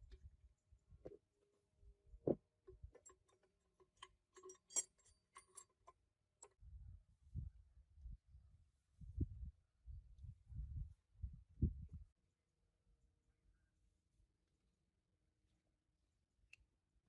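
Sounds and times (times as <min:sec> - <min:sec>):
parts clicking and tapping: 0:02.7 - 0:06.0.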